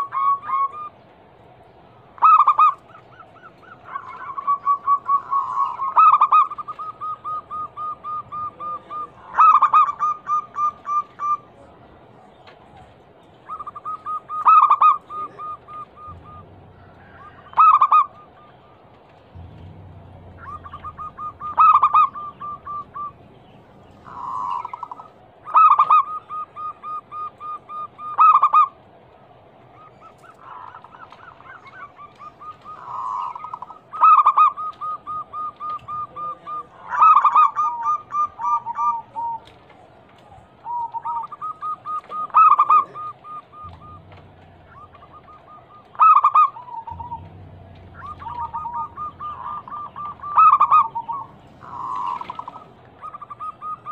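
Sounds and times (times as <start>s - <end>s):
doves cooing rapidly: 0.0s - 53.9s
second dove cooing lower: 13.5s - 23.3s, 29.8s - 53.9s.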